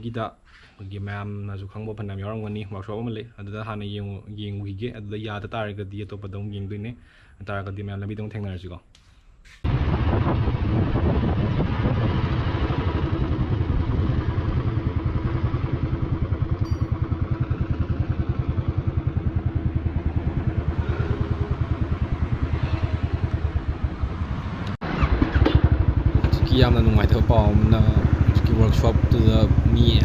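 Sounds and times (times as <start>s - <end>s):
motorcycle engine running: 9.7s - 30.0s.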